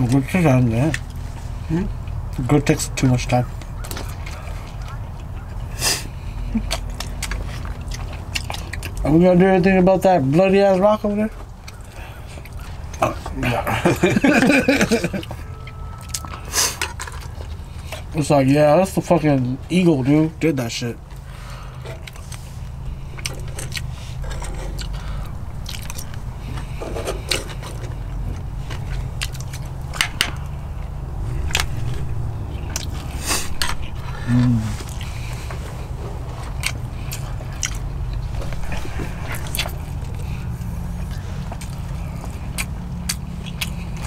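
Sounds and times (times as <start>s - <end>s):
person chewing and biting: 3.7s - 9.0s, 21.8s - 44.0s
low rumble: 27.7s - 41.7s.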